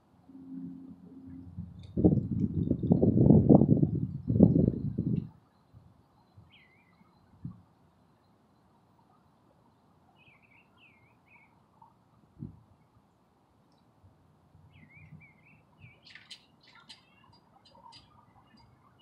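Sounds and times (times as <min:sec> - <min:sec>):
small birds chirping: 0:04.1 - 0:12.0, 0:14.7 - 0:19.0.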